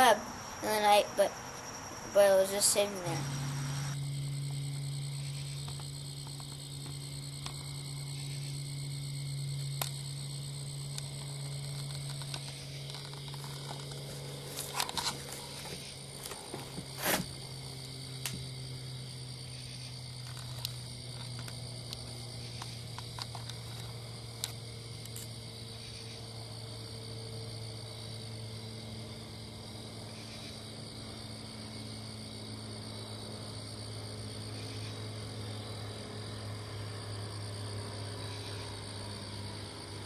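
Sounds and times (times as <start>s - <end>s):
insects chirping: 0.0s - 40.0s
low steady hum: 0.0s - 40.0s
rustles: 11.2s - 17.6s.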